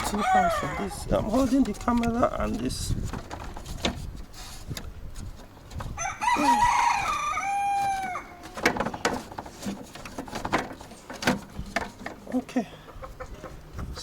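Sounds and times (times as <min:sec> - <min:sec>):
rooster crowing: 0:00.0 - 0:01.0, 0:06.0 - 0:08.6
sharp clicks and knocks: 0:07.8 - 0:12.4.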